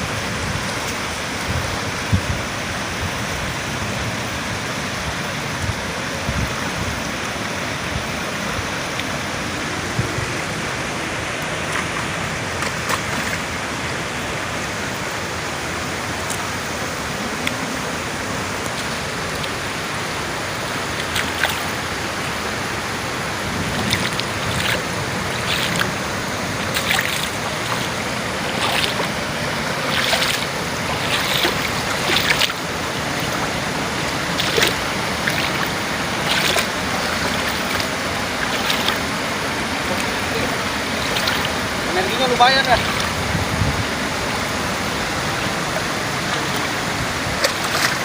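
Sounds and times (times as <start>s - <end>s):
rushing water: 0.0s - 48.0s
sharp splashes: 8.9s - 14.0s, 15.8s - 48.0s.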